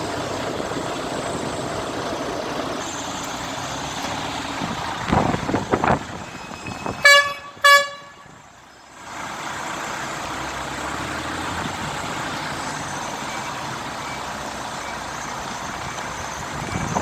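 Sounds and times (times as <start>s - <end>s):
passing vehicles engine and road noise: 0.0s - 17.0s
vehicle horn toots: 6.3s - 8.4s.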